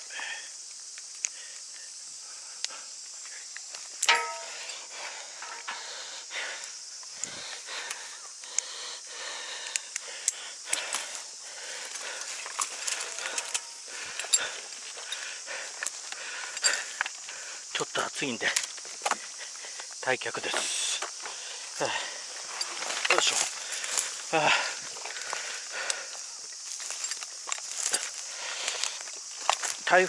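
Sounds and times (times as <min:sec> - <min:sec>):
high-pitched insect drone: 0:00.0 - 0:30.0
handling clicks and rustling: 0:04.0 - 0:05.8, 0:11.9 - 0:15.2
sharp ringing clank: 0:04.0 - 0:05.9.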